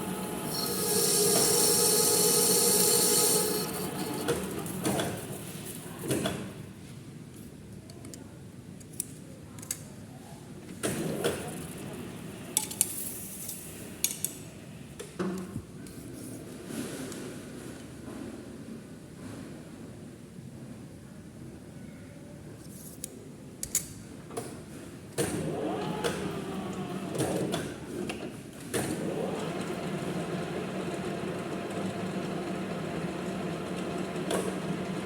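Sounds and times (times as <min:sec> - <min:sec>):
lathe metallic squeal: 0:00.0 - 0:05.3.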